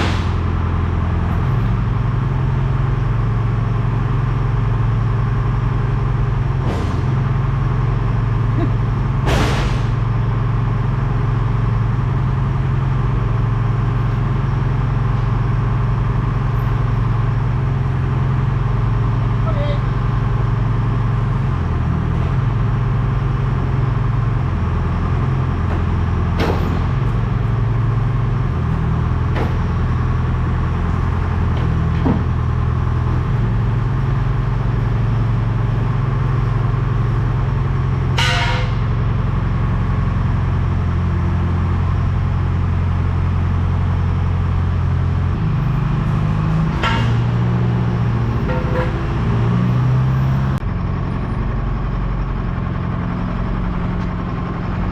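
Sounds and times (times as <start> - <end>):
heavy engine running: 0.0 - 54.9
metallic clanks: 38.1 - 39.0, 46.0 - 50.1.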